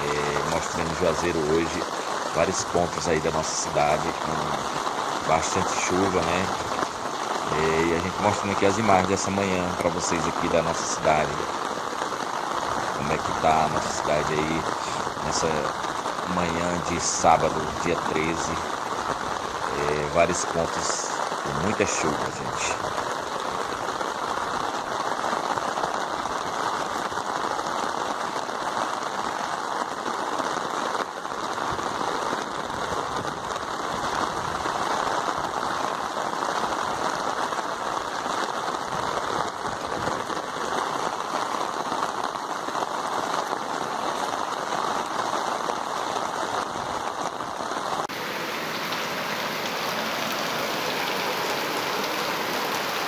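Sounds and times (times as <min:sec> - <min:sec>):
heavy rain hissing: 0:00.0 - 0:23.6, 0:48.0 - 0:53.0.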